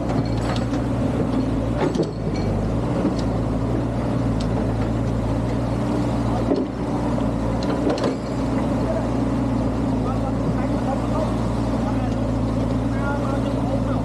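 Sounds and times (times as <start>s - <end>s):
sharp knocks and clanks: 0.0s - 3.3s, 7.6s - 8.3s
excavator diesel engine running: 0.0s - 14.0s.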